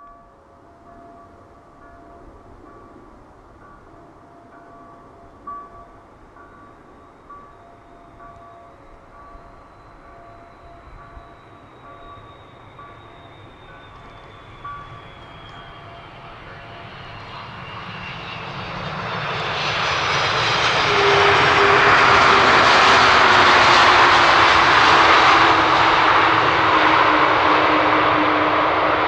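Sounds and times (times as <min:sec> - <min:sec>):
airliner jet engines: 0:10.8 - 0:29.0
thin whines gliding down: 0:11.4 - 0:29.0.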